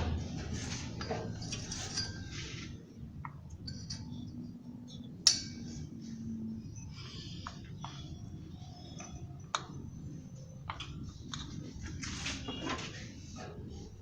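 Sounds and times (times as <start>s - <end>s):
metal tools clinking: 1.0s - 2.6s.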